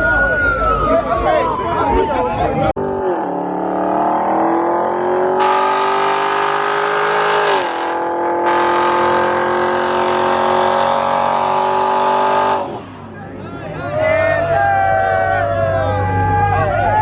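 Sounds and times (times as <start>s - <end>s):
car engine at high revs: 2.8s - 13.2s.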